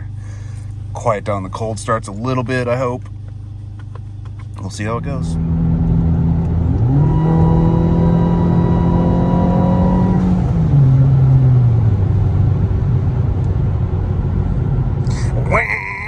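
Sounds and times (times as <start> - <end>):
car engine droning: 0.0 - 16.0.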